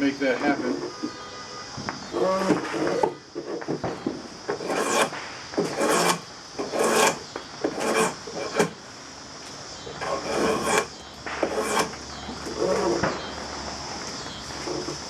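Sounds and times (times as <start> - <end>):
drawknife scraping wood: 0.6 - 1.2, 2.1 - 8.8, 9.9 - 13.2, 14.5 - 15.0.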